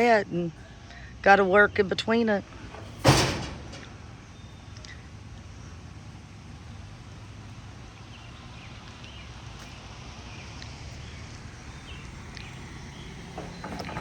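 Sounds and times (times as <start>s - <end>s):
birds chirping: 3.7s - 14.0s.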